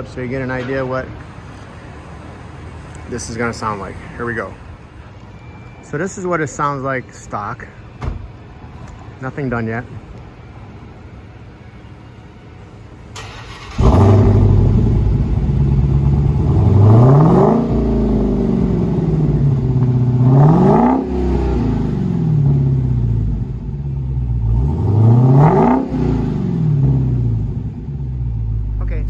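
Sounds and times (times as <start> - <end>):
car engine starting: 13.0 - 29.0
car engine idling and revving: 13.2 - 29.0.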